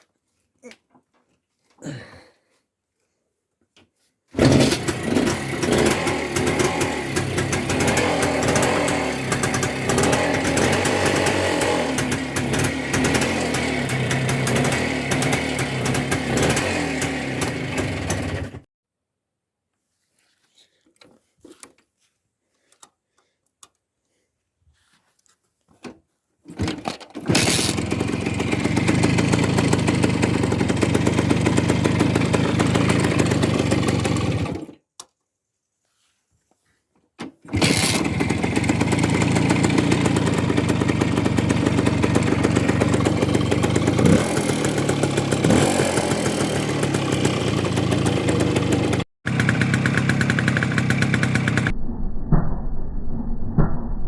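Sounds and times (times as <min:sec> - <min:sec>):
motorcycle engine revving: 0:04.4 - 0:18.7, 0:27.2 - 0:34.7, 0:37.5 - 0:51.7
motorcycle engine running: 0:04.4 - 0:18.7, 0:27.3 - 0:34.7, 0:37.5 - 0:51.7.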